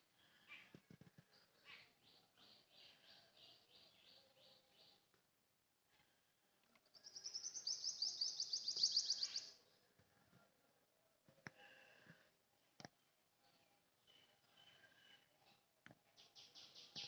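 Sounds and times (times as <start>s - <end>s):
faint bird chirps: 0.1s - 5.1s, 6.8s - 9.8s, 13.0s - 17.0s.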